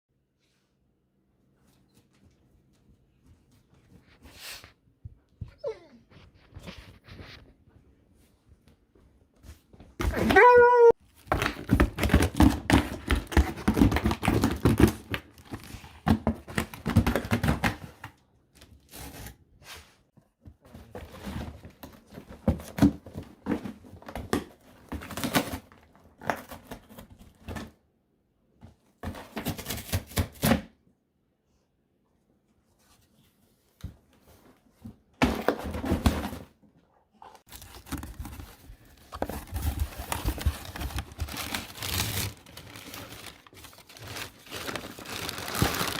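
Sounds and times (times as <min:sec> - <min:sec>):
dog tearing cardboard box: 0:11.2 - 0:18.1, 0:39.2 - 0:43.4.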